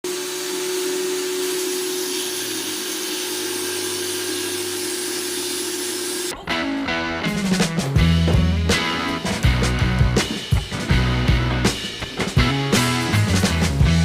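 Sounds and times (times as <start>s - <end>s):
table saw motor running: 0.0s - 6.3s
music: 6.3s - 14.0s.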